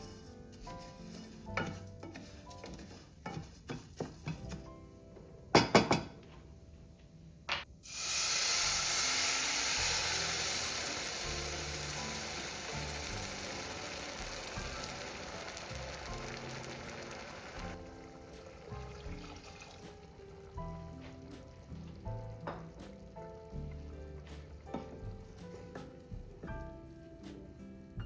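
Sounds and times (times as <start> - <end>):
food sizzling in hot oil: 7.8 - 23.6.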